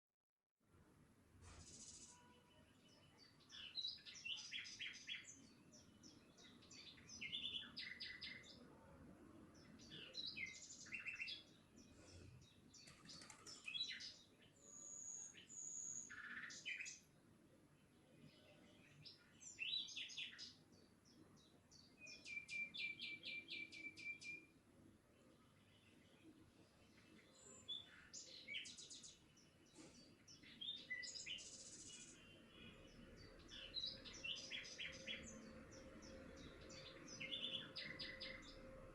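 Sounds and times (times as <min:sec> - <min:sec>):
birds chirping: 0:09.5 - 0:17.1, 0:25.2 - 0:38.9.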